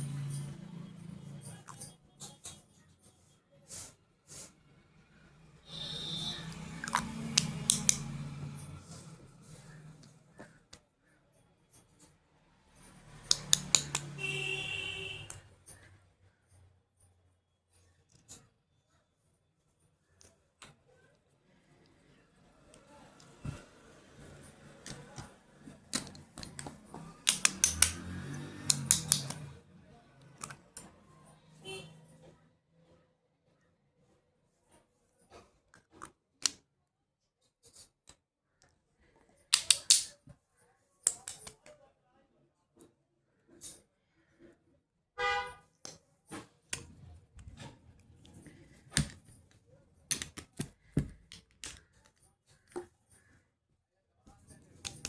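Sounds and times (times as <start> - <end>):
cases being handled clicks and taps: 6.8 - 8.2, 13.1 - 14.2, 24.8 - 29.6, 39.5 - 40.2, 41.1 - 41.8, 46.7 - 52.9, 54.6 - 55.0
plastic cases clicking and tapping: 25.9 - 29.5, 39.5 - 40.2, 50.1 - 52.9, 54.8 - 55.0.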